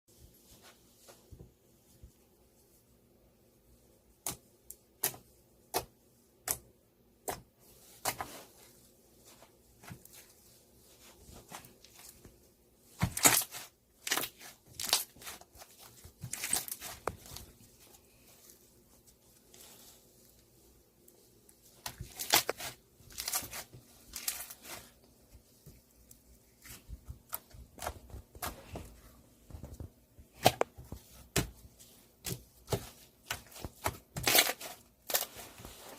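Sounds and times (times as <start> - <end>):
crinkling and tearing: 21.8 - 25.0, 33.3 - 35.9.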